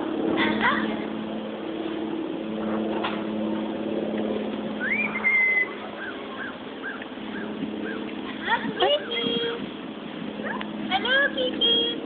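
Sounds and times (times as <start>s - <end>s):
low motor hum: 0.0s - 12.0s
parrot whistling: 4.8s - 8.0s.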